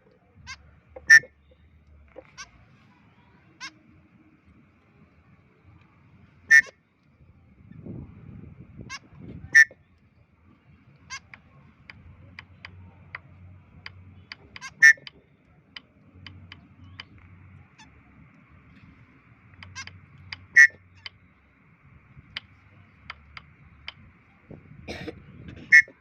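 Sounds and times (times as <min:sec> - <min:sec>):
faint bird chirps: 0:00.1 - 0:04.4, 0:06.4 - 0:07.8, 0:08.9 - 0:24.6
bird giving sharp calls: 0:00.5 - 0:01.4, 0:06.5 - 0:06.8, 0:08.9 - 0:09.8, 0:11.0 - 0:13.2, 0:13.8 - 0:15.2, 0:19.5 - 0:21.2, 0:25.7 - 0:26.0.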